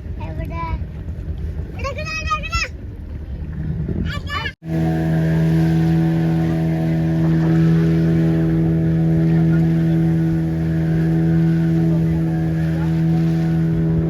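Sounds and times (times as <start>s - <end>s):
motor humming steadily: 4.6s - 14.0s.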